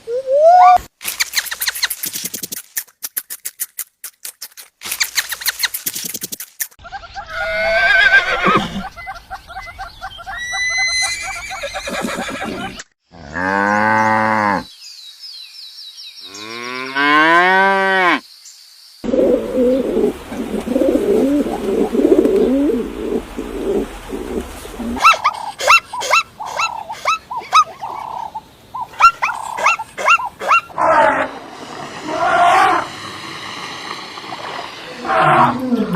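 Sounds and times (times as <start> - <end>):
animal grunting: 29.4 - 35.9.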